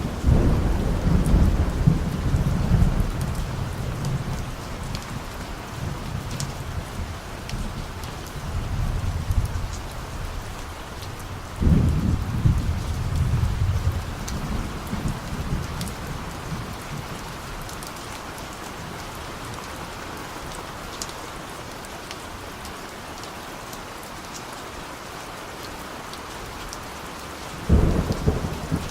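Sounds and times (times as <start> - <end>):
distant thunder rumble: 0.0 - 10.5, 11.3 - 17.7, 27.6 - 28.9
raindrops ticking: 0.0 - 19.8, 20.5 - 24.5
steady rain falling: 0.0 - 28.9.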